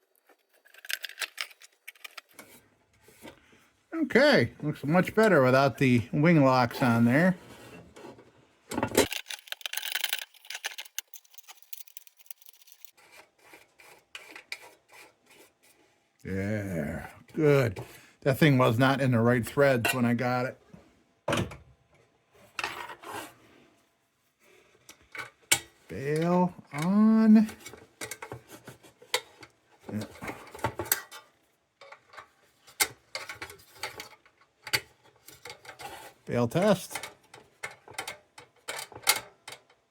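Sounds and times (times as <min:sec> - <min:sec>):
small metallic clicks and scraping: 0:00.0 - 0:02.6, 0:08.8 - 0:13.3, 0:27.5 - 0:39.9
lantern frame rattling: 0:09.0 - 0:12.9.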